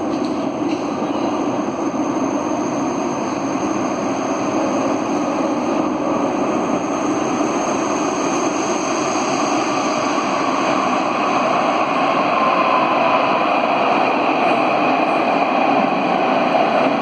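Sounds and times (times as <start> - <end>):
electric tram rumbling: 0.0 - 17.0.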